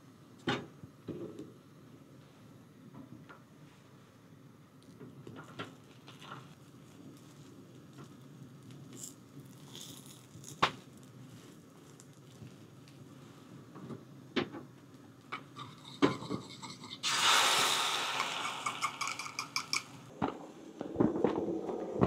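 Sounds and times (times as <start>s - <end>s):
utensils knocking on cookware: 15.4s - 17.0s, 18.1s - 20.0s
food sizzling in hot oil: 15.8s - 20.0s.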